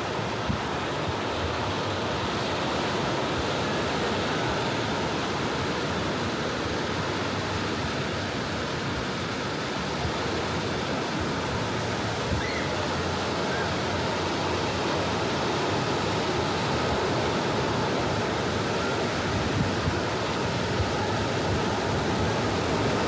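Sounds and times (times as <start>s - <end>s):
ocean waves washing onto beach: 0.0s - 23.0s.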